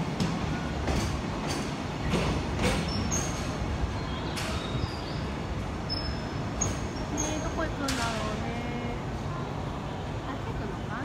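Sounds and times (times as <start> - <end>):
wheels clacking over rail joints: 0.0 - 8.6
freight train rumble: 0.0 - 11.0.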